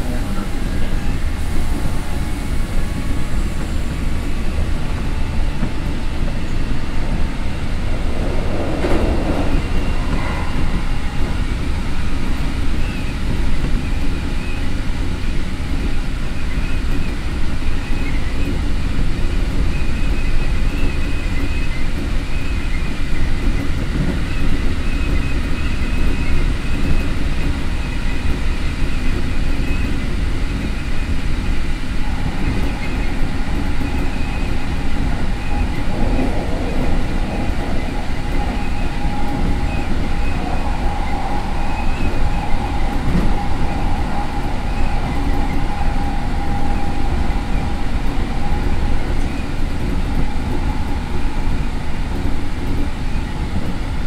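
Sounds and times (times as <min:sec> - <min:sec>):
faint high whine: 0:00.0 - 0:13.1, 0:30.7 - 0:53.4
rushing air: 0:00.0 - 0:13.5, 0:30.9 - 0:53.4
train wheels rumbling on rail: 0:00.0 - 0:54.0.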